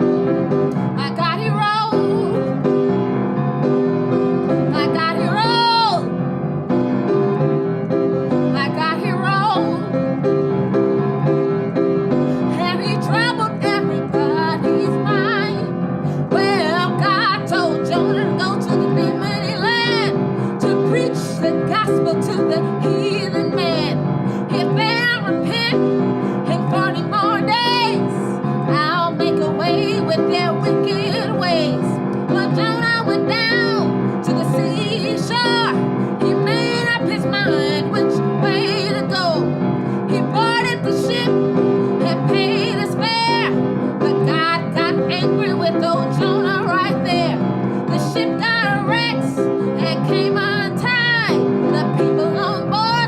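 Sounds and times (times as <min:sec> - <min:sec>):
piano chords: 0:00.0 - 0:53.0
woman singing gospel: 0:04.7 - 0:06.0, 0:08.6 - 0:09.8, 0:12.5 - 0:15.6, 0:16.4 - 0:25.8, 0:26.4 - 0:39.4, 0:40.1 - 0:41.3, 0:42.0 - 0:53.0.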